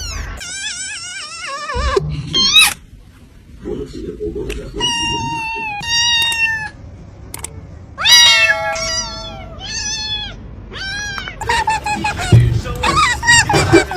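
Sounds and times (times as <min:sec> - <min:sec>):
cat meowing: 0:04.8 - 0:06.8, 0:08.0 - 0:11.4.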